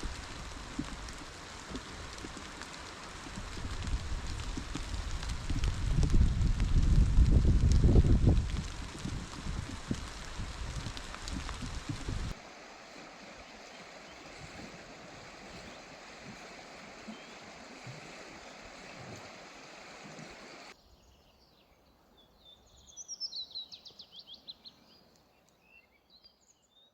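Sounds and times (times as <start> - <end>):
stream rushing: 0.0 - 20.8
songbird singing: 12.4 - 26.9.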